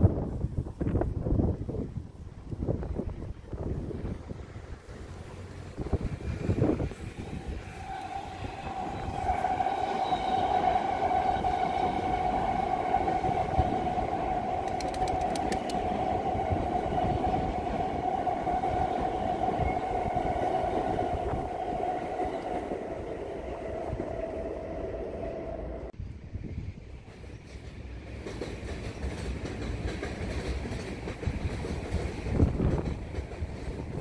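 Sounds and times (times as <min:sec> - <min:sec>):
train wheels rumbling on rail: 0:00.0 - 0:34.0
sharp clicks: 0:14.6 - 0:15.9.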